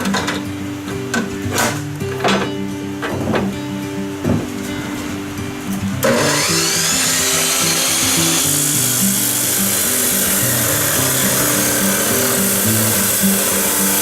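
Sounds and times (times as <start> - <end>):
background music: 0.0 - 14.0
power tool high-pitched whine: 6.0 - 14.0.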